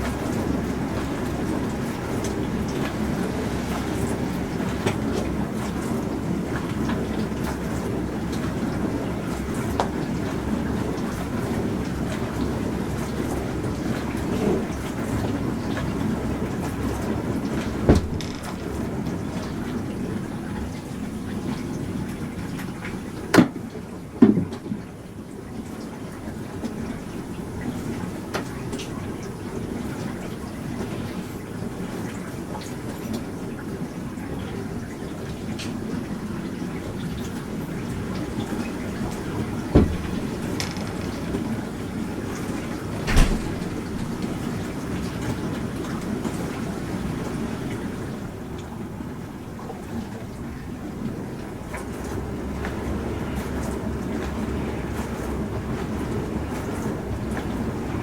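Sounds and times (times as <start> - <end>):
dishwasher running: 0.0 - 32.4, 33.1 - 58.0
dishwasher water spraying: 16.4 - 19.6, 38.0 - 45.7
sharp knocks: 17.8 - 18.6, 39.7 - 41.4.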